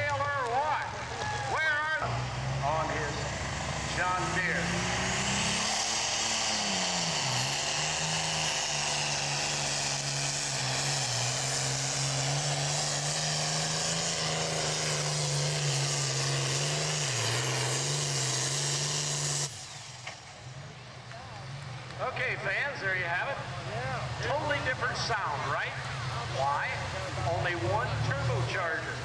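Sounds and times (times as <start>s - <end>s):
high turbo whine: 0.0s - 20.9s
tractor engine at high revs: 0.0s - 29.0s.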